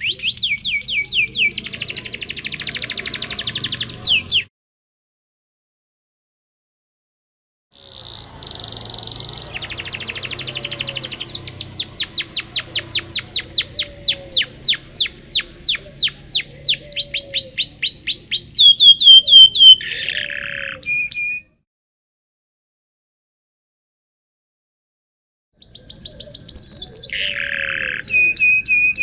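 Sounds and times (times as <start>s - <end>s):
canary singing: 0.0s - 4.5s, 7.8s - 21.6s, 25.6s - 29.0s.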